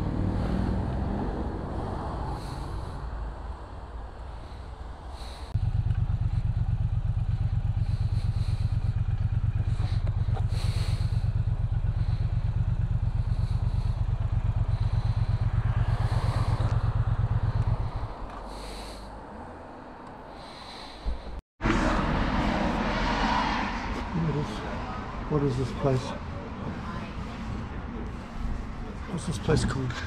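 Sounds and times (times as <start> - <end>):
motorcycle engine idling: 4.2 - 19.3.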